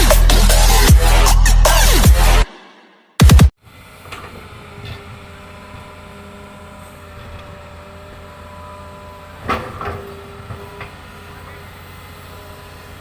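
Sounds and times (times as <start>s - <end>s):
excavator diesel engine running: 3.2s - 13.0s.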